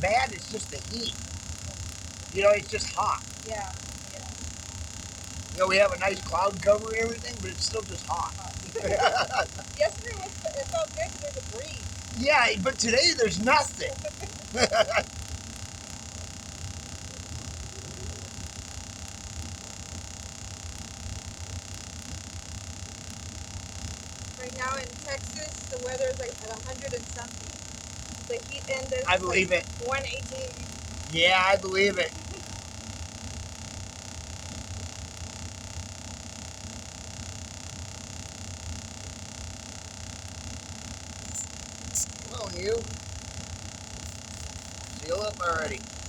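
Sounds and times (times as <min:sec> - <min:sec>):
air compressor humming: 0:00.0 - 0:18.6, 0:41.1 - 0:46.0
air compressor running: 0:43.9 - 0:46.0.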